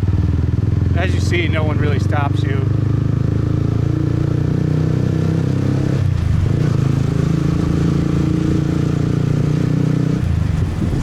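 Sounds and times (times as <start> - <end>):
motorbike engine running: 0.0 - 5.3.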